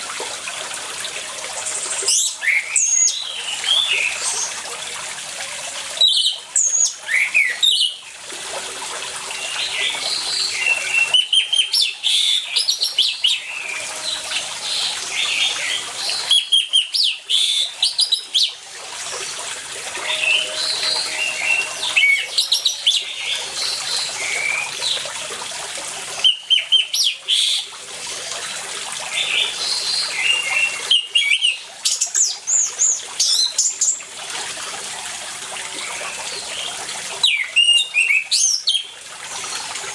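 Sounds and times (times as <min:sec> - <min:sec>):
running water: 0:00.0 - 0:39.9
thrush singing: 0:19.8 - 0:24.5.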